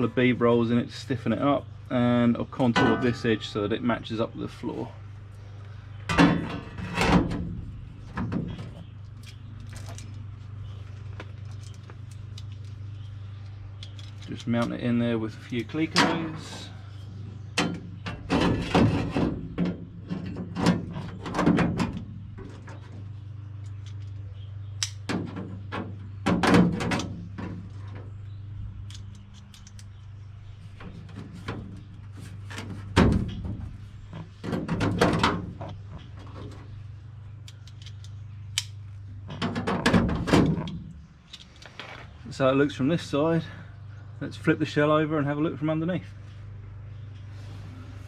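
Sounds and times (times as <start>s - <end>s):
steady low hum: 0.0s - 48.0s
metal clicks clanks and knocks: 2.6s - 3.4s, 37.4s - 41.9s.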